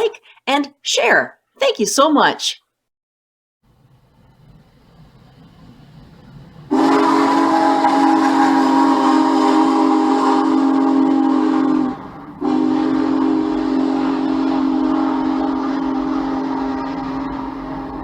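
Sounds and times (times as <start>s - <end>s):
faint low rumble: 3.7s - 6.7s
steam whistle blowing: 6.7s - 18.0s.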